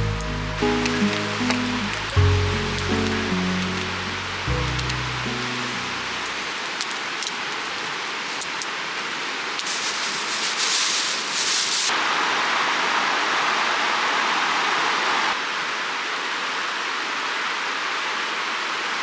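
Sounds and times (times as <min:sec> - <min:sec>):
loud hiss: 0:00.0 - 0:06.6, 0:09.6 - 0:12.3
creek rushing: 0:00.0 - 0:07.2
fine crackling hiss: 0:00.0 - 0:12.4.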